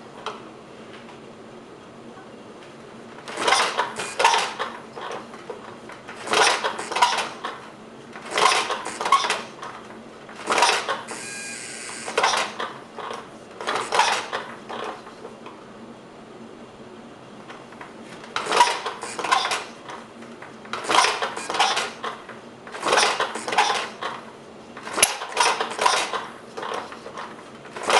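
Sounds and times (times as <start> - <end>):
steady buzz: 11.1 - 12.2.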